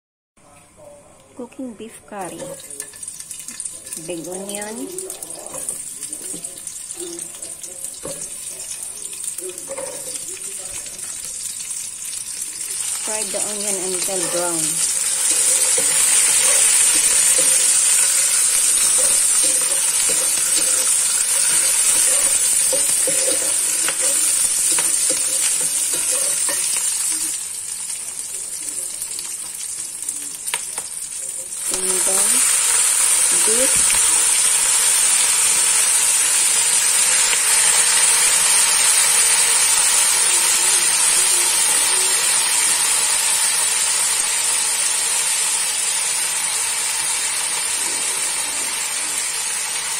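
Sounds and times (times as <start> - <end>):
onions sizzling in hot oil: 1.6 - 49.9
wooden spatula stirring: 14.1 - 27.3.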